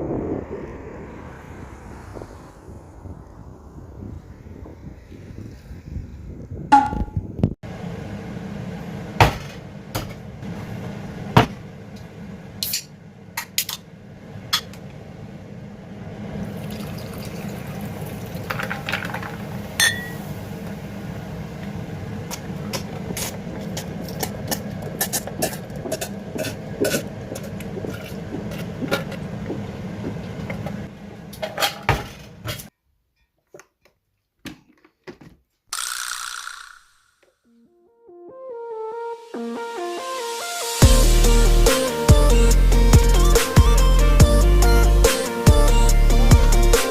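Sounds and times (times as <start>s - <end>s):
stream water running: 16.4s - 20.2s.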